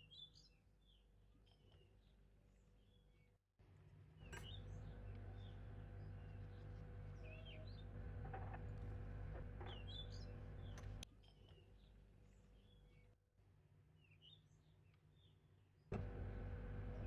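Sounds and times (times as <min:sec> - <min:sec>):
small birds chirping: 0:00.0 - 0:03.4, 0:04.2 - 0:13.2
steady low hum: 0:04.3 - 0:11.1.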